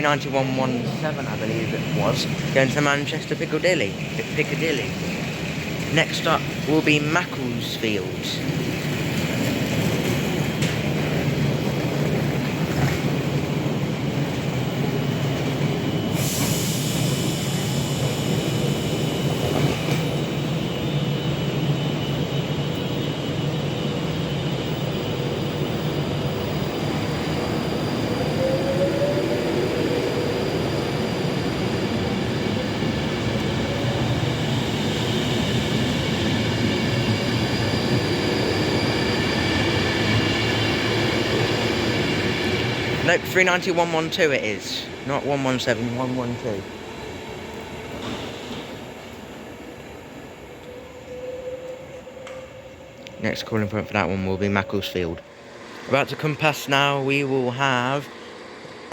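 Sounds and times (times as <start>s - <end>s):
electric train rumble: 0.0s - 58.9s
high whining tones: 15.7s - 44.2s.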